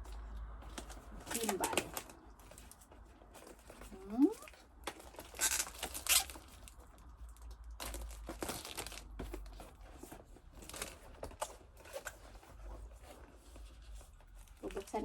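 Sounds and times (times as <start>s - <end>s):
packaging crinkling and tearing: 0.0s - 9.8s, 10.5s - 12.3s.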